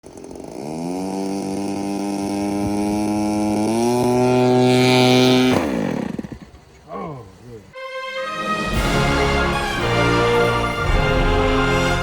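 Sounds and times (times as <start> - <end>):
model airplane engine revving: 0.0 - 6.6.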